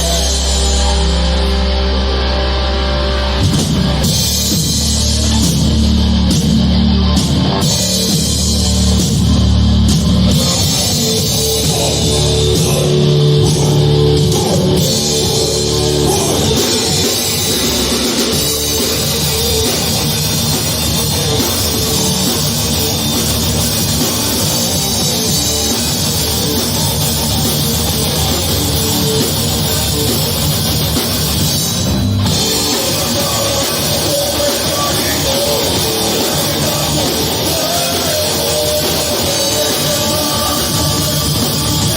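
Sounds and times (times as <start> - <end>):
heavy metal band playing live: 0.0 - 41.9.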